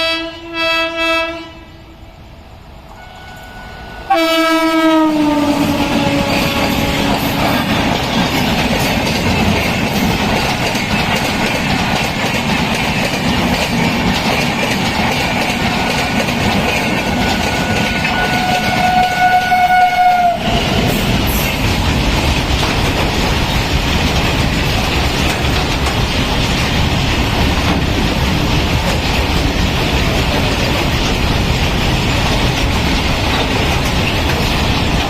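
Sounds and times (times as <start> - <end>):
train horn: 0.0 - 2.0, 2.9 - 8.0, 17.0 - 20.8
train rushing past: 0.0 - 35.0
wheels clacking over rail joints: 5.3 - 35.0.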